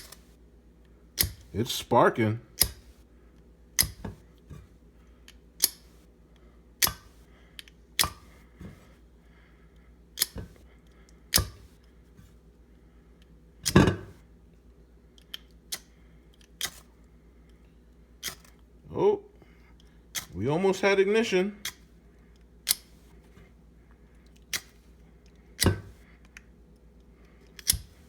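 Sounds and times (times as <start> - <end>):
scraper striking fire-starter rod: 25.6 - 26.0.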